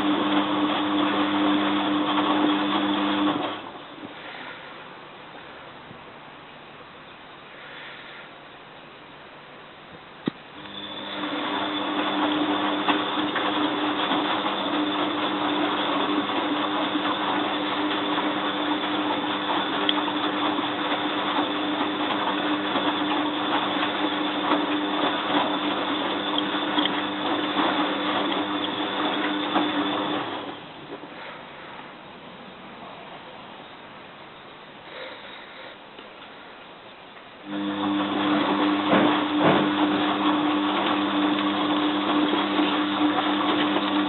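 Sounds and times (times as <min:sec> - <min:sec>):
washing machine water rushing: 0:00.0 - 0:03.8, 0:10.6 - 0:30.8, 0:37.5 - 0:44.0.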